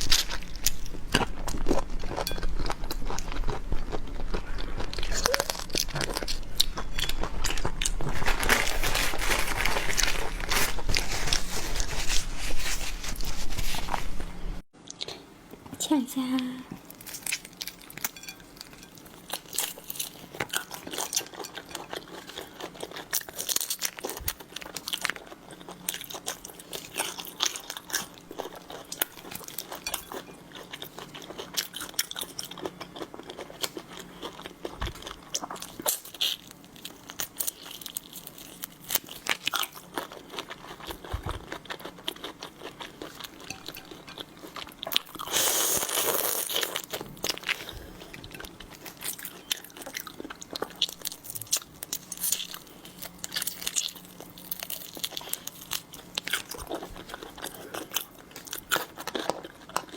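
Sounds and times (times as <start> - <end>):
close-miked crunching and chewing: 0.0 - 14.0, 14.8 - 15.6, 16.8 - 59.9.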